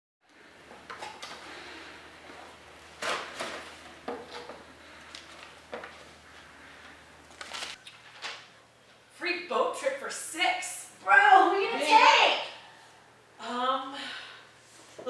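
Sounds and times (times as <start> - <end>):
low steady hum: 0.3 - 10.0.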